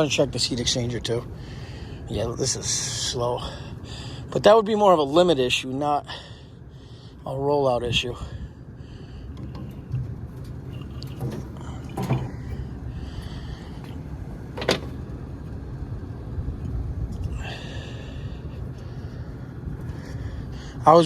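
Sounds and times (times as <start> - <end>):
hvac unit rumbling: 0.0 - 21.0
metal knocks and clanks: 9.4 - 12.6, 13.8 - 15.0.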